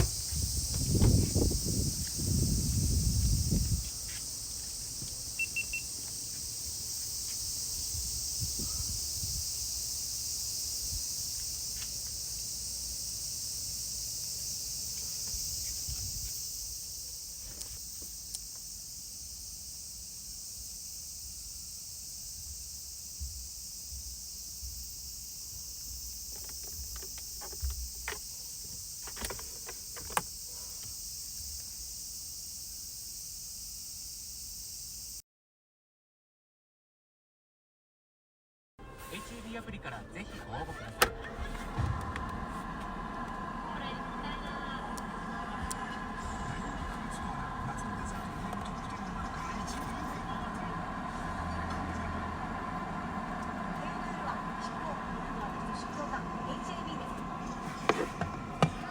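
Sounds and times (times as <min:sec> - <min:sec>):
high-pitched insect drone: 0:00.0 - 0:35.2
low rumbling: 0:41.1 - 0:58.9.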